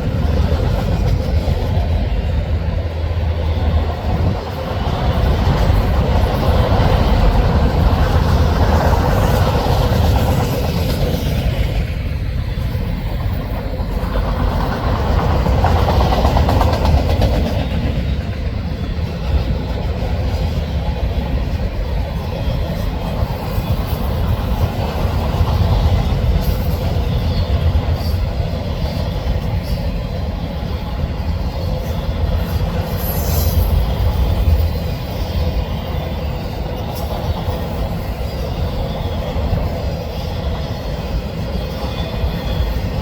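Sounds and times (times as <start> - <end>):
freight train wheels rumbling on rail: 0.0 - 43.0
wheel squeal: 31.6 - 43.0.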